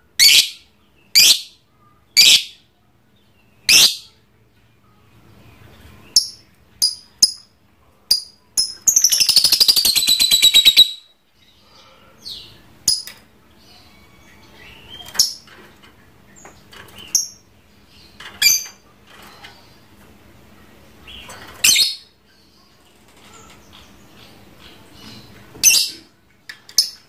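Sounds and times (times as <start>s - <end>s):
bird chattering trill: 0.2s - 0.6s, 2.2s - 2.6s, 8.1s - 11.1s
lovebird squawking: 0.2s - 0.6s, 1.2s - 1.5s, 2.2s - 2.6s, 3.7s - 4.1s
lovebird chirping: 0.2s - 2.7s, 3.6s - 4.2s, 6.1s - 7.5s, 8.1s - 15.5s.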